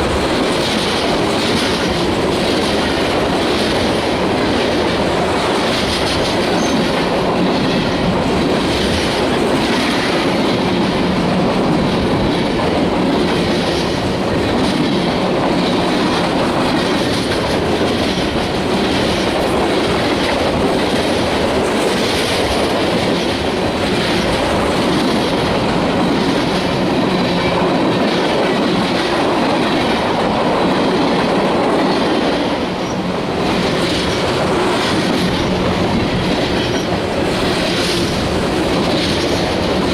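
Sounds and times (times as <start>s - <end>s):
train wheels clacking on rails: 0.0s - 39.9s.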